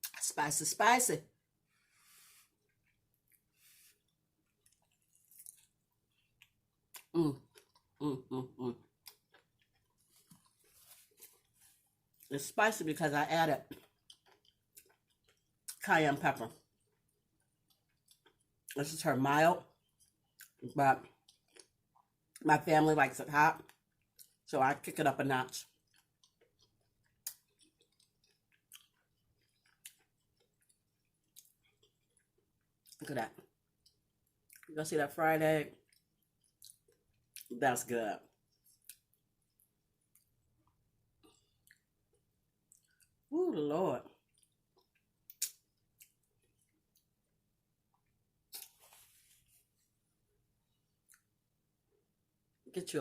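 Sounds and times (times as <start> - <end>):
chewing crisp food: 2.2 - 12.5, 13.6 - 19.0, 19.6 - 22.5, 23.5 - 34.8, 35.7 - 37.6, 38.2 - 43.3, 44.0 - 52.6
wet mouth clicks: 45.3 - 46.2.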